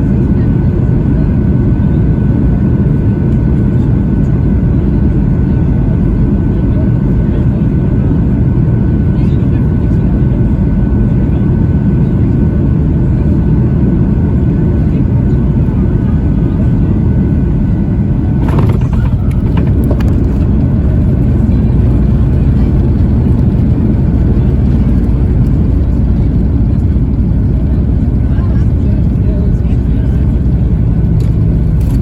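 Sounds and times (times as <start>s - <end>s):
airplane cabin roar on landing: 0.0s - 32.0s
clatter of rattles: 18.4s - 23.7s.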